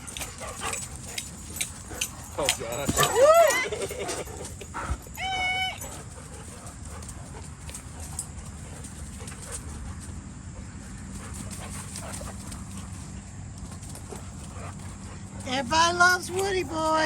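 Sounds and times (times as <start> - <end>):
dogs moving about: 0.0 - 17.0
dog whining: 2.7 - 6.2.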